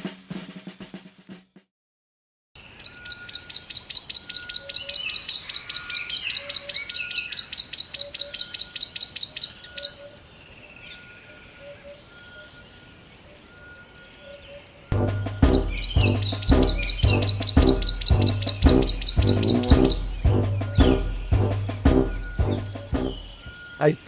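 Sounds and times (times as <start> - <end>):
birds chirping: 2.7 - 24.0
music with heavy beat: 14.9 - 23.4.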